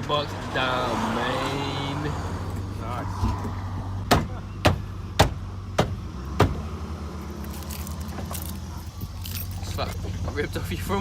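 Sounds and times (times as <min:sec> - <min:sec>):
sharp knocks: 0:04.0 - 0:06.6.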